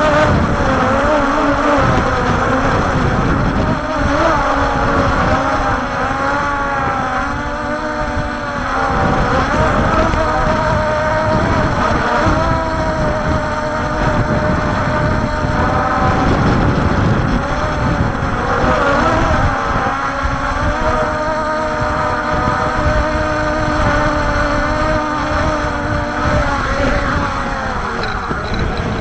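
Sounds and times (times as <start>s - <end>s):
quadcopter motors whining: 0.0s - 29.0s
wind rumble on microphone: 0.0s - 29.0s.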